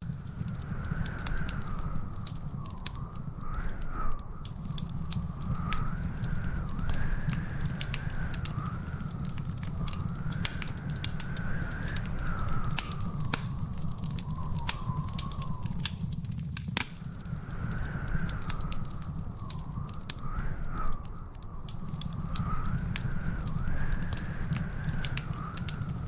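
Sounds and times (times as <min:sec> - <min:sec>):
wood fire crackling and popping: 0:00.0 - 0:26.0
high wavering whistle: 0:11.6 - 0:15.8.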